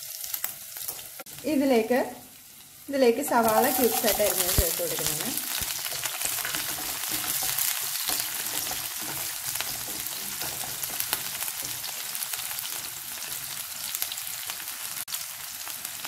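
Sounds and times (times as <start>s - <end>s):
onions sizzling in hot oil: 0.0s - 16.0s
wooden spatula stirring: 3.3s - 13.5s.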